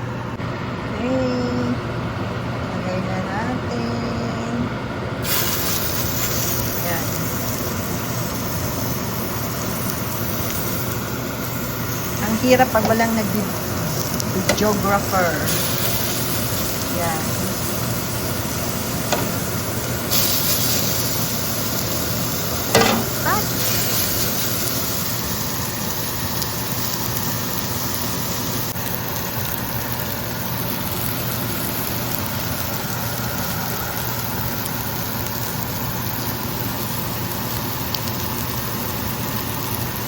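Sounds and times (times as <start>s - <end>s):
steady low hum: 0.0s - 27.9s
burger patties sizzling in pan: 5.2s - 40.0s
utensil knocking on pan: 22.7s - 23.2s.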